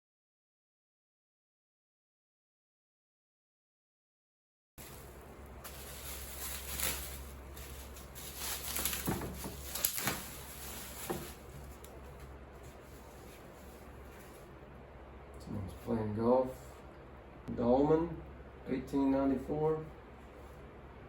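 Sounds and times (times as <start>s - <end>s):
rustling: 4.8s - 14.6s
low steady hum: 4.8s - 21.0s.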